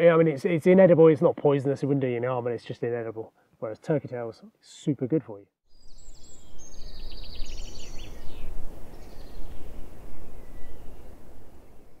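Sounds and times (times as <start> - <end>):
small birds chirping: 5.7 - 12.0.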